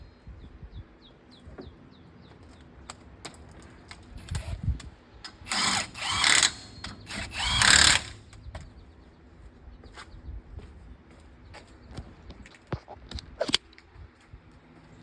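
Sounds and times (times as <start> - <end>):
impact wrench bursts: 5.3 - 8.3.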